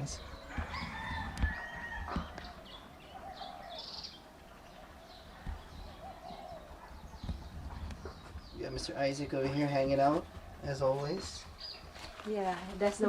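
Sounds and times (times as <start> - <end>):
lower warbling bird calls: 0.0 - 11.9
birds chirping: 0.0 - 13.0.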